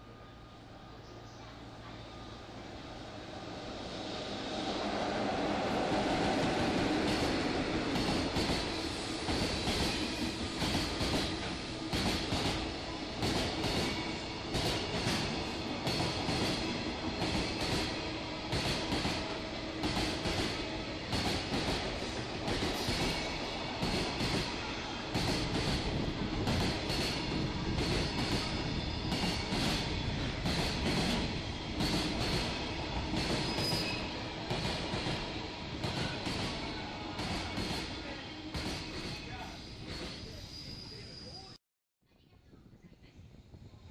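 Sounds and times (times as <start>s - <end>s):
train rumble: 0.0s - 41.6s
freight train wheels clattering: 5.9s - 40.4s
train wheels clacking over rail joints: 25.2s - 34.0s
high wheel squeal: 33.4s - 34.2s, 39.1s - 41.6s.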